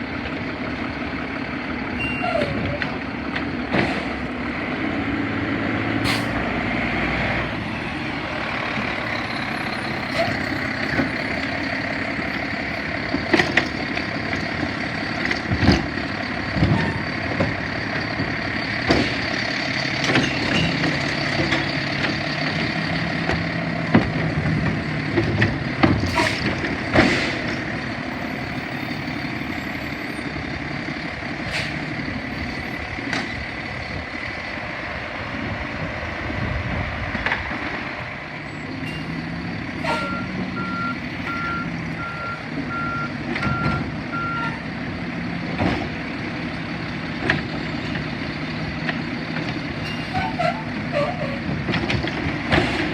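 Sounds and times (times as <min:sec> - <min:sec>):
garbage truck running: 0:00.0 - 0:52.9
knocks and clatter: 0:13.1 - 0:27.8, 0:45.4 - 0:46.0, 0:51.5 - 0:52.9.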